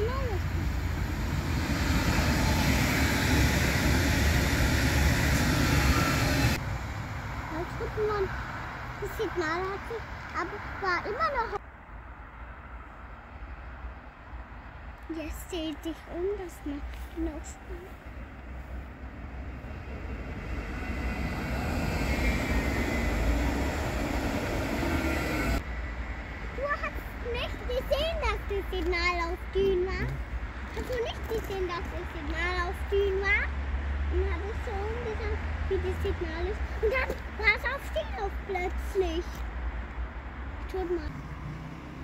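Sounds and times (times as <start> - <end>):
passenger train passing close: 0.0 - 10.0, 15.8 - 28.4
wheel-on-rail rumble: 0.0 - 11.6, 15.1 - 40.0
faint high whine: 0.3 - 6.6.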